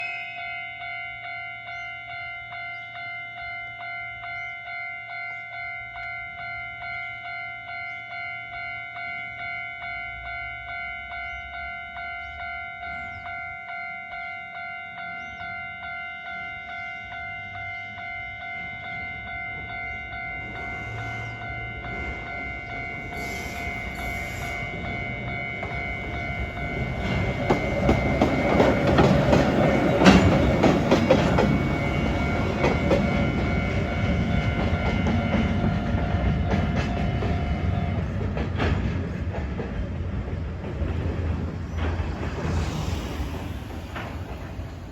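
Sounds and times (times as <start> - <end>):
level-crossing warning bell: 0.0 - 40.3
train clattering over rail joints: 18.5 - 44.9.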